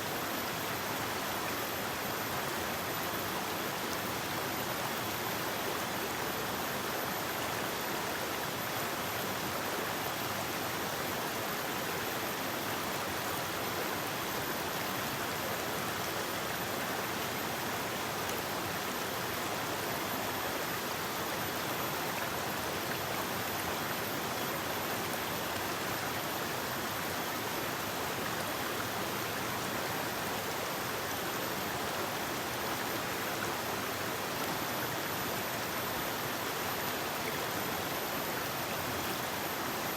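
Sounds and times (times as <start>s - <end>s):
river water rushing: 12.7s - 39.9s.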